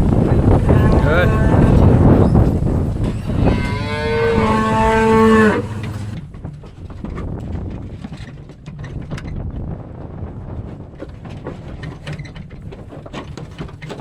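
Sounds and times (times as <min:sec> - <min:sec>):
low rumbling noise: 0:00.0 - 0:06.4
cow mooing: 0:00.6 - 0:02.0, 0:03.0 - 0:06.2.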